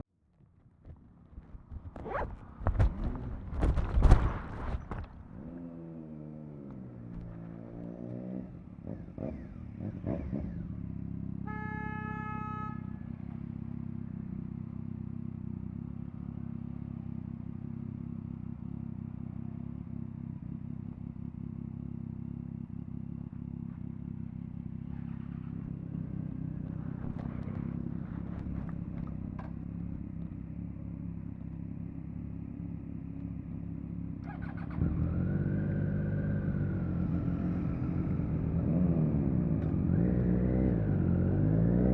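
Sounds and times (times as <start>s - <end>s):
motorcycle engine running: 0.9s - 41.9s.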